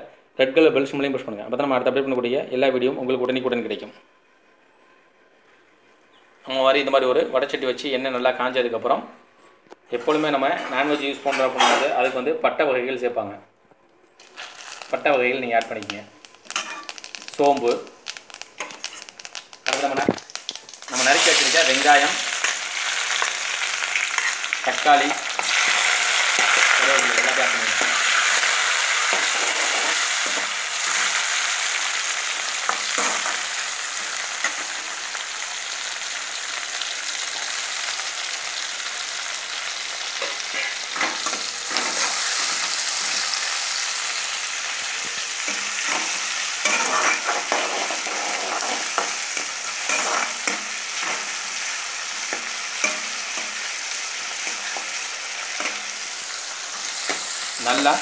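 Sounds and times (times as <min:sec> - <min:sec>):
tomatoes and onions sizzling: 0:14.1 - 0:58.0
spatula scraping pan: 0:40.2 - 0:43.3, 0:45.4 - 0:51.4.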